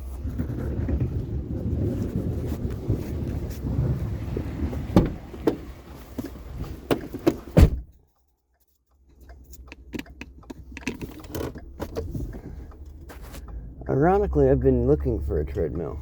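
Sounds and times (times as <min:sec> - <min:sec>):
treadmill knocks and clunks: 0:04.9 - 0:05.7.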